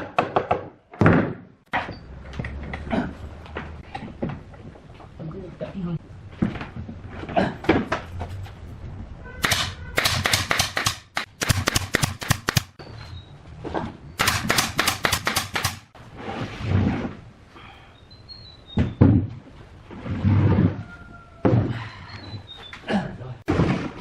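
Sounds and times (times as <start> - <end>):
rapid hammering: 9.4 - 12.8, 14.2 - 15.9.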